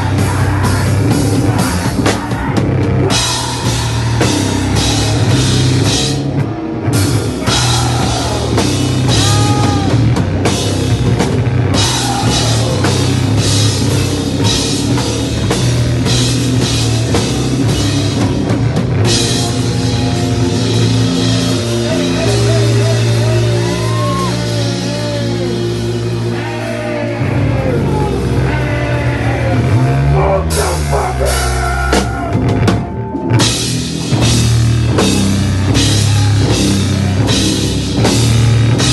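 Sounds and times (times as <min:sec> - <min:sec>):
drum kit with crashing cymbals: 0:00.0 - 0:26.9, 0:30.5 - 0:38.9
bass guitar: 0:00.0 - 0:38.9
distorted electric guitars: 0:00.0 - 0:38.9.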